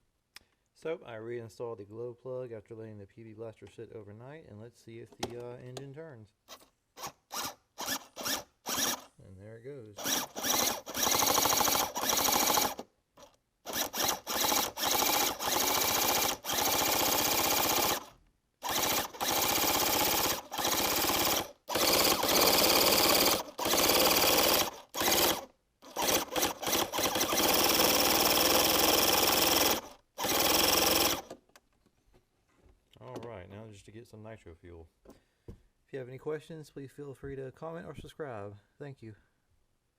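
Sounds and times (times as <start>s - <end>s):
small engine whirring: 6.5s - 9.1s, 10.0s - 31.4s.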